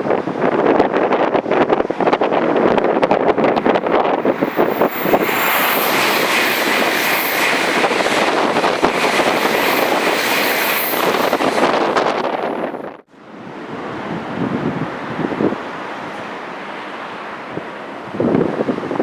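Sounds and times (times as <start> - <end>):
high-speed train passing: 0.1 - 18.6.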